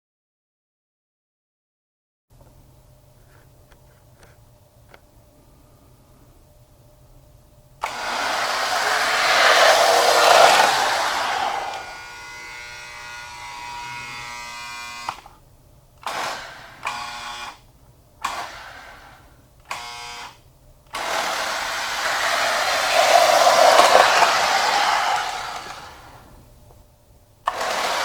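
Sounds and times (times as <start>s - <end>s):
toy train motor whine: 7.8s - 15.3s, 16.0s - 17.6s, 18.2s - 26.3s, 27.5s - 28.0s
toy train motor whirring: 7.8s - 15.3s, 18.2s - 26.3s, 27.5s - 28.0s.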